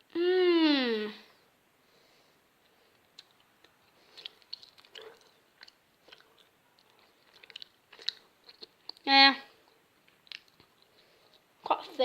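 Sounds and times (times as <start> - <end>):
wet chewing and mouth clicks: 2.6 - 11.5.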